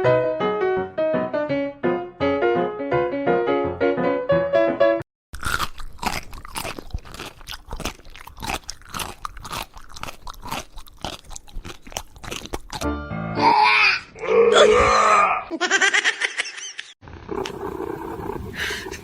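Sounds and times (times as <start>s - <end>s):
piano music: 0.0s - 5.0s, 12.9s - 13.4s
crunching and chewing food: 5.3s - 12.9s.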